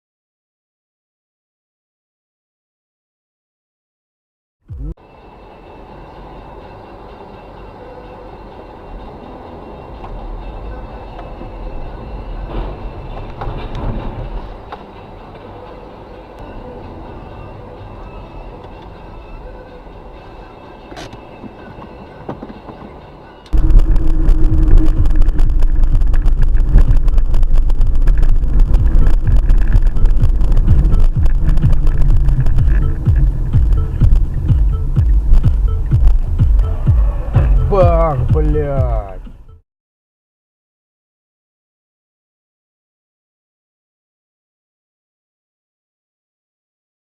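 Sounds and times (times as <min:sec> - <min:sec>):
road and wind noise: 0:04.7 - 0:39.6
vehicle rumble from inside: 0:04.7 - 0:39.6.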